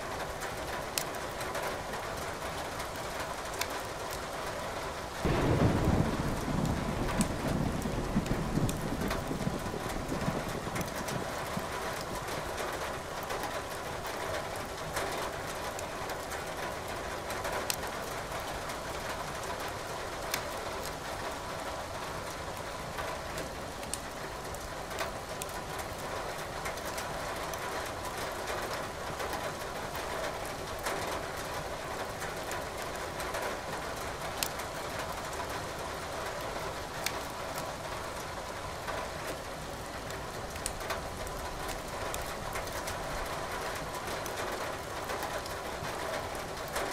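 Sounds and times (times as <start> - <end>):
firewood crackling and popping: 0.9 - 1.2, 5.2 - 12.3, 15.7 - 18.8, 20.2 - 21.0, 23.8 - 26.0, 34.2 - 35.6, 37.0 - 46.9
rain hissing: 5.2 - 11.5.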